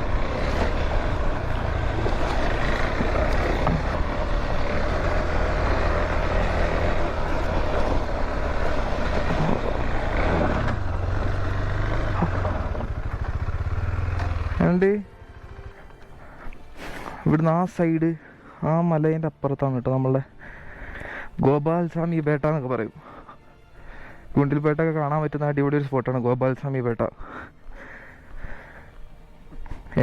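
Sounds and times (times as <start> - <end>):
vehicle engine humming: 0.0 - 17.2
road and wind noise: 0.0 - 17.4.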